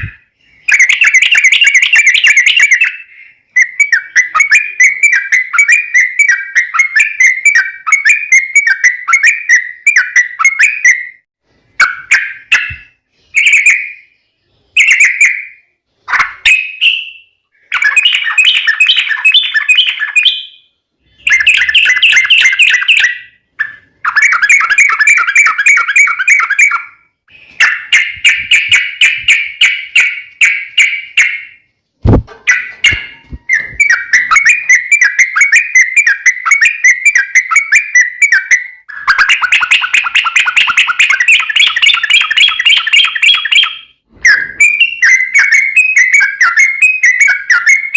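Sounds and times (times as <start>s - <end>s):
bulbul singing rapid chattering: 11.8s - 44.0s.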